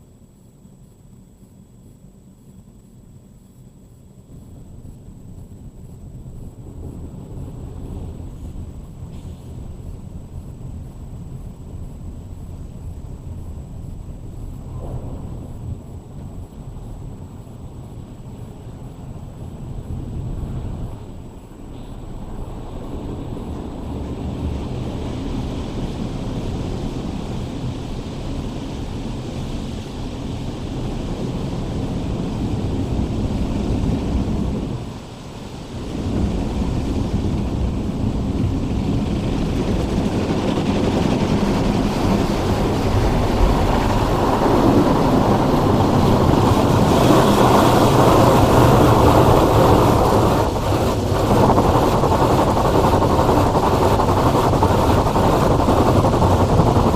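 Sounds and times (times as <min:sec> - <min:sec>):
car wash machinery rushing: 0:22.4 - 0:56.9.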